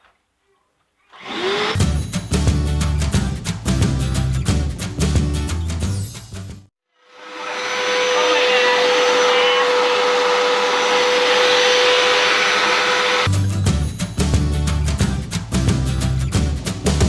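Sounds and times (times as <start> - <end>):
carpet washer motor running: 7.3 - 13.3.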